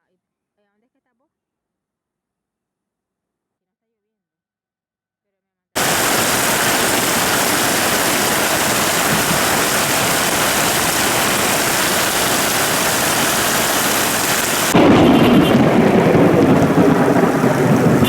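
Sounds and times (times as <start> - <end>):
heavy rain falling: 5.8 - 18.0.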